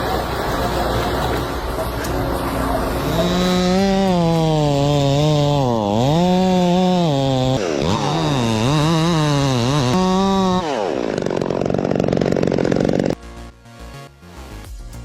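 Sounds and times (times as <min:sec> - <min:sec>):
machinery rumble: 0:00.0 - 0:06.0
chainsaw cutting wood: 0:02.9 - 0:13.5.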